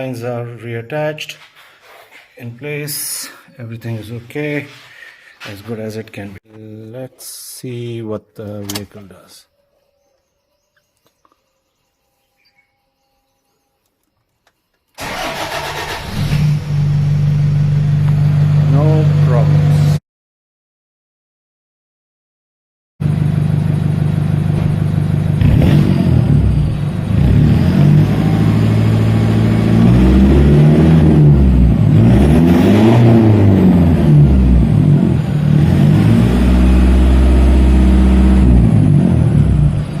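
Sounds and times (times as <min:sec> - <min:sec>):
diesel engine revving: 0:15.0 - 0:20.0, 0:23.0 - 0:40.0.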